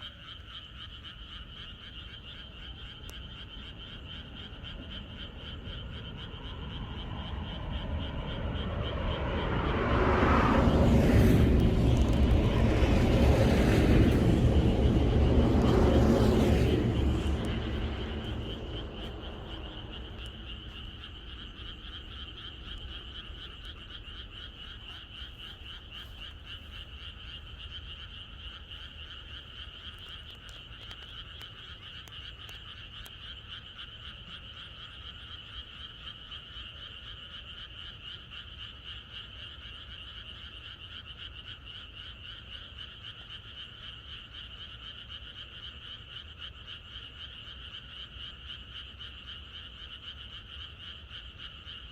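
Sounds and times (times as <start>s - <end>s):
frogs croaking in chorus: 0.0s - 51.9s
low rumble: 4.4s - 28.5s.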